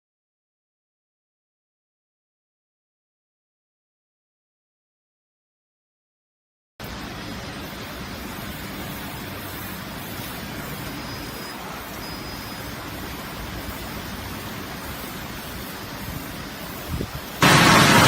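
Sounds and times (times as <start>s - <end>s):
car wash machine rushing: 6.8s - 18.0s.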